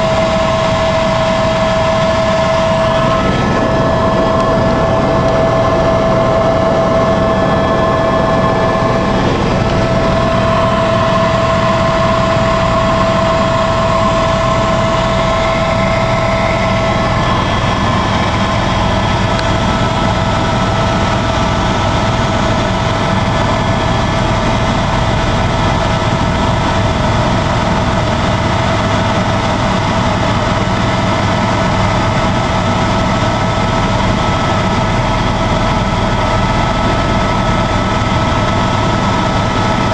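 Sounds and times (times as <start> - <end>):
whining tones: 0.0 - 29.9
helicopter engine and rotor drone: 0.0 - 39.9.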